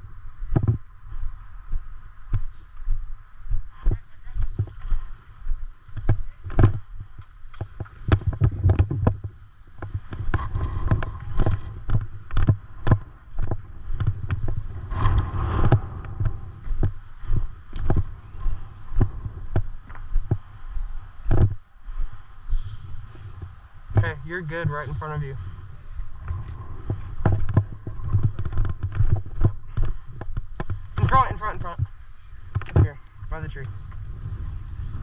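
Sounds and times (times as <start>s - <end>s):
rustling: 6.0s - 33.1s
dull thumps and sharp knocks: 7.6s - 17.0s, 21.3s - 21.6s, 26.8s - 33.0s.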